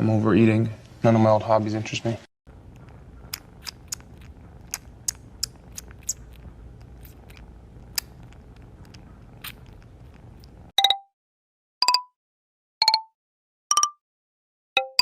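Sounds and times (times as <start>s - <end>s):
crunching chewing: 2.5s - 10.7s
low steady hum: 2.5s - 10.7s.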